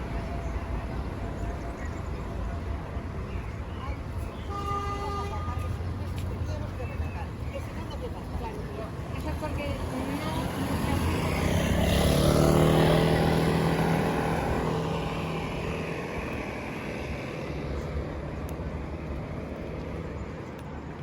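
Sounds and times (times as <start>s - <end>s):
motor vehicle passing by: 5.4s - 21.0s.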